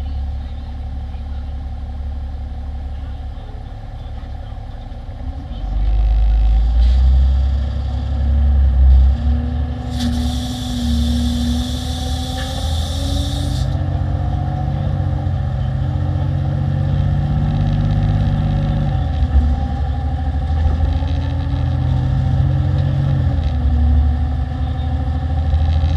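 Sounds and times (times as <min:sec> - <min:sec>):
diesel truck engine running: 0:00.0 - 0:25.9
air hiss: 0:09.9 - 0:13.8.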